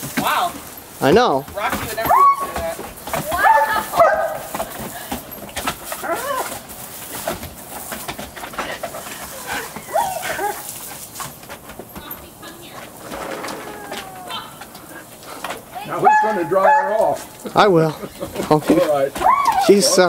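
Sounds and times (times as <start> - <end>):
dog yelping and whining: 2.1 - 2.5, 6.0 - 6.5, 9.4 - 10.8, 13.6 - 15.0, 15.8 - 17.0, 19.2 - 19.7.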